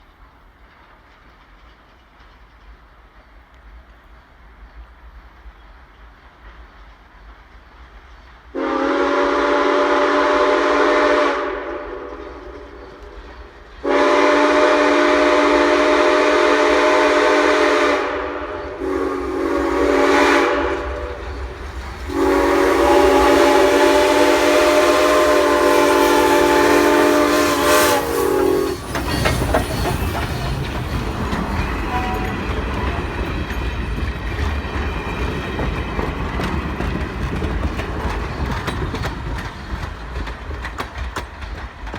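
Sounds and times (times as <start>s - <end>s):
train rumbling past: 0.0s - 41.9s
train whistle blasts: 8.6s - 12.6s, 13.8s - 21.2s, 22.1s - 29.2s, 31.9s - 32.3s
wheels clicking over rail joints: 28.7s - 41.9s.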